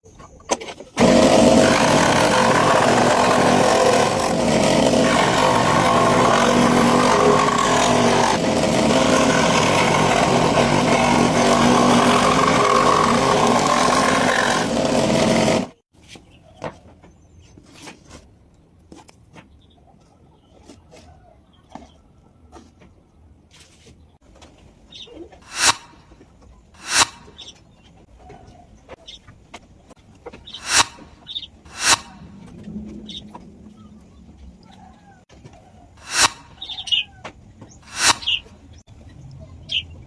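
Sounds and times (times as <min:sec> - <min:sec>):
power tool cutting wood: 0:01.0 - 0:15.8, 0:25.5 - 0:26.0, 0:26.8 - 0:27.4, 0:30.6 - 0:32.3, 0:36.0 - 0:36.8, 0:37.9 - 0:38.5.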